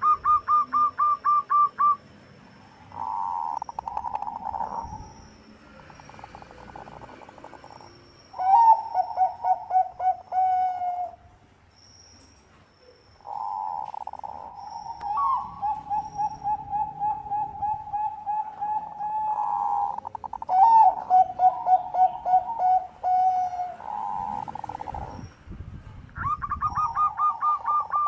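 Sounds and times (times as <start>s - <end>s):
dove rapid staccato cooing: 2.9s - 4.8s, 13.3s - 25.2s, 26.2s - 28.0s.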